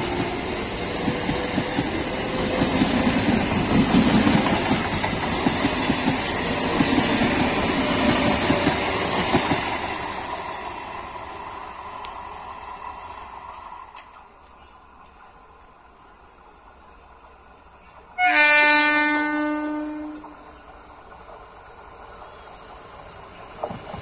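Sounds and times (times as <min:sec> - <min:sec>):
train wheels clattering over rail joints: 0:00.0 - 0:10.0, 0:23.5 - 0:24.0
train rushing noise: 0:00.0 - 0:15.2, 0:16.4 - 0:24.0.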